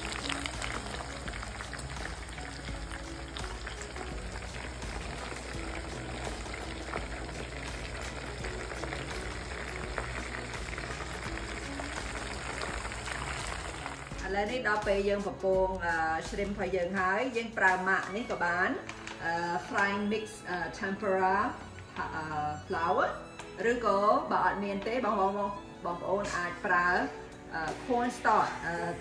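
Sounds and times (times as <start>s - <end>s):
food sizzling in hot oil: 0.0s - 14.3s
soft background music: 0.0s - 29.0s.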